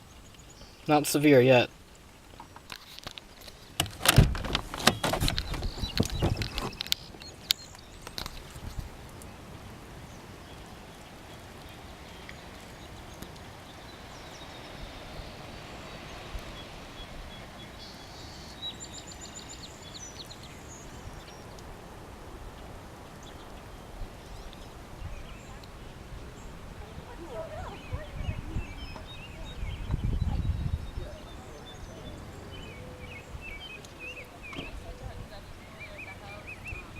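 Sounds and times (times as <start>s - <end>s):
outdoor background noise: 0.0s - 36.9s.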